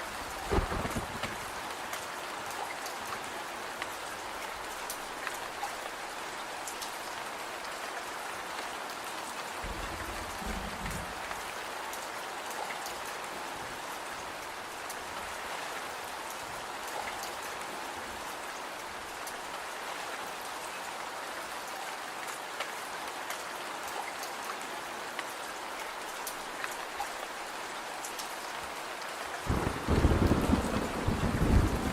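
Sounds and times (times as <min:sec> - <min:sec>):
steady rain: 0:00.0 - 0:31.9
thunder rumbling: 0:00.2 - 0:01.5, 0:09.6 - 0:11.3, 0:29.5 - 0:31.9.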